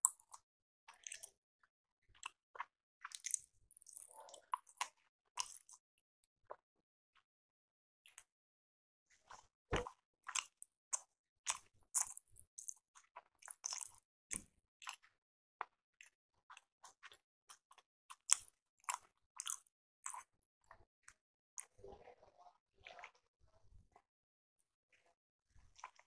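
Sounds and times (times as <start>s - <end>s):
mouth chewing wet clicks: 2.2s - 5.8s, 13.4s - 14.0s.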